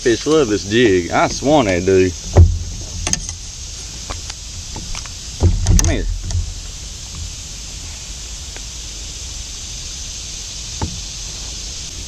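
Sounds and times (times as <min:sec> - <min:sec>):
steady outdoor hiss: 0:00.0 - 0:12.0.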